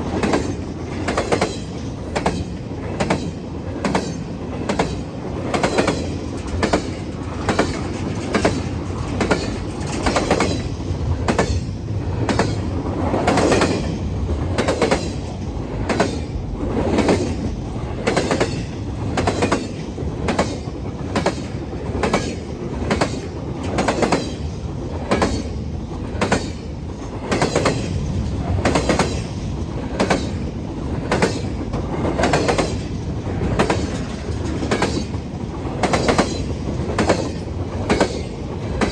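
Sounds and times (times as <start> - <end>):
train rumble: 0.0 - 38.9
train wheels clicking over rail joints: 0.0 - 38.9.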